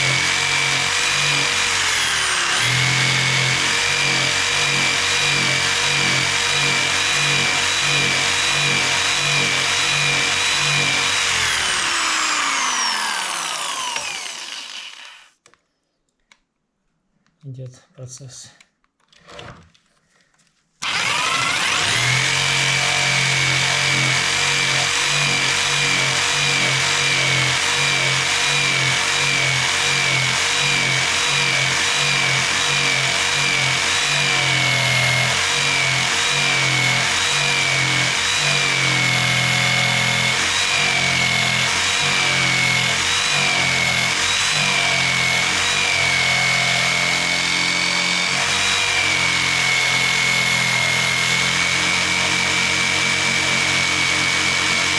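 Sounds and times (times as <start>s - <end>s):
electric jigsaw cutting wood: 0.0s - 15.5s, 20.8s - 54.9s.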